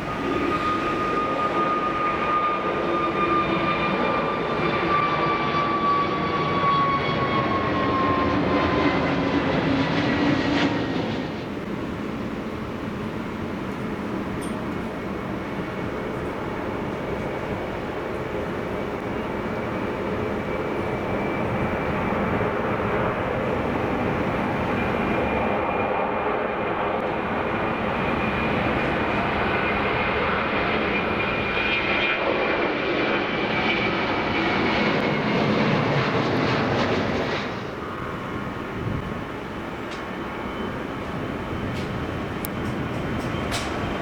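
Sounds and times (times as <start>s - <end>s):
jet engines whining on take-off: 0.0s - 44.0s.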